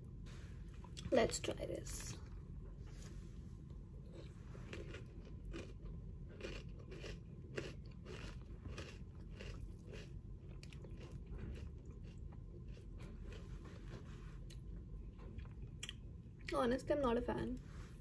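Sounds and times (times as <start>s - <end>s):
crunchy cereal chewing: 4.0s - 13.5s.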